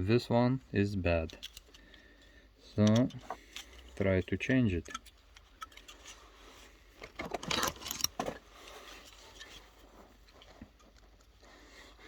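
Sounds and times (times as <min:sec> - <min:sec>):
screwdriver scraping and rattling: 0:01.2 - 0:02.0, 0:02.7 - 0:11.4.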